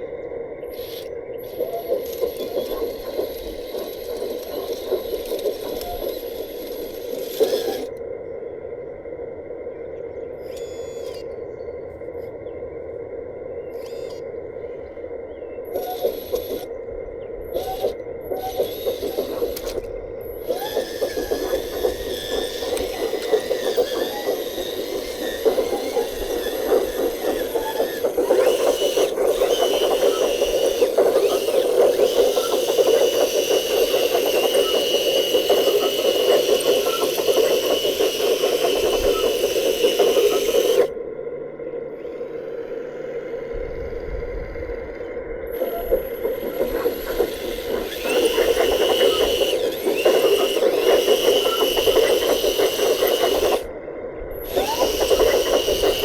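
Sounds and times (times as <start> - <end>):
electric motor and gears whining: 0.0 - 8.0, 10.4 - 11.4, 13.7 - 14.3, 15.7 - 16.7, 17.4 - 41.0, 41.9 - 53.7, 54.3 - 56.0
grinding scraping noise: 17.6 - 40.9, 45.5 - 53.7.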